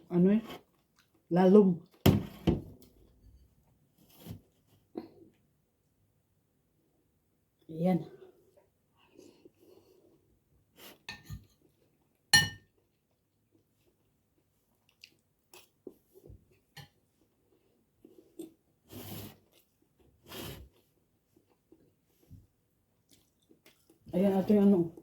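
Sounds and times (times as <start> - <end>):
soft chewing: 0.4 - 2.0, 8.2 - 25.0
cutlery clinking on plate: 12.4 - 12.7
short scrapes or slurps: 18.9 - 20.8.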